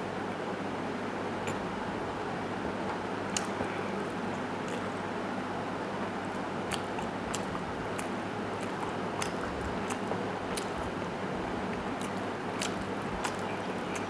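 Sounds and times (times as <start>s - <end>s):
mouth clicks and smacks: 4.6s - 5.0s, 6.3s - 14.0s
wet chewing: 4.6s - 5.1s, 6.3s - 14.0s.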